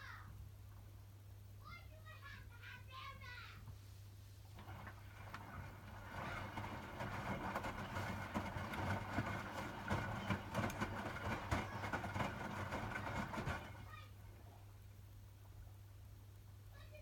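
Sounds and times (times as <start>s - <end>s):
washing machine drum tumbling: 4.5s - 14.3s.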